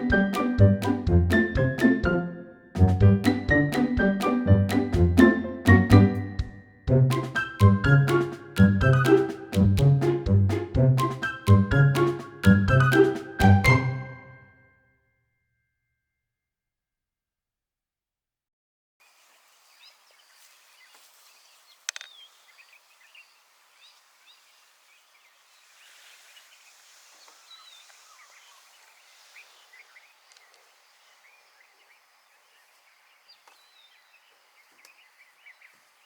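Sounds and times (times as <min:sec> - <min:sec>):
small birds chirping: 0:19.1 - 0:36.0.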